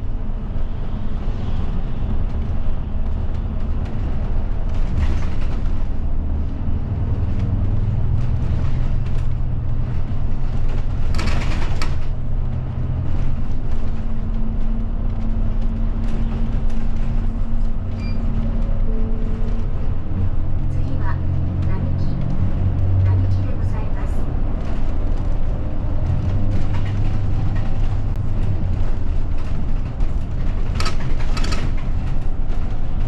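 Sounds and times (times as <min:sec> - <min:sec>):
bus diesel engine running: 0:00.0 - 0:33.0
road noise: 0:00.0 - 0:33.0.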